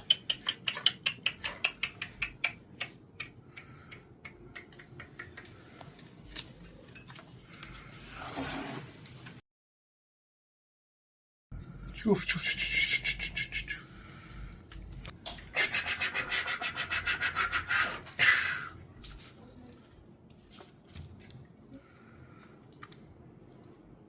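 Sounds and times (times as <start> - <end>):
loud sharp scrape: 8.0 - 9.0.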